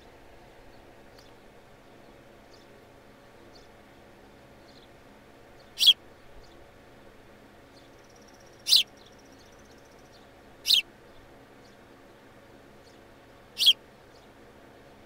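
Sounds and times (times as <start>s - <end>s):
faint chirping: 5.6s - 6.6s, 7.7s - 10.8s, 13.6s - 14.4s
young bird calling loudly: 5.8s - 6.0s, 8.6s - 8.9s, 10.6s - 10.9s, 13.6s - 13.8s.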